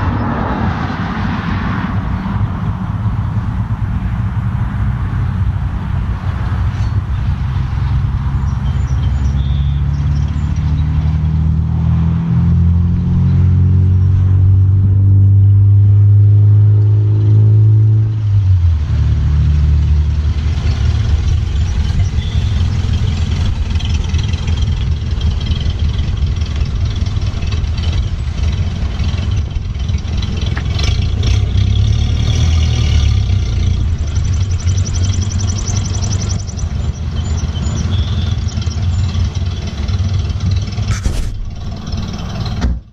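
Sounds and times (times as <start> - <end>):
car engine running: 18.1 - 42.9.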